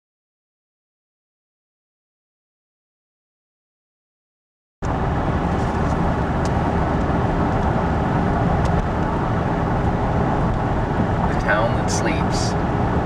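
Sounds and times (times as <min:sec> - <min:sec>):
vehicle road and engine noise: 0:04.8 - 0:13.0.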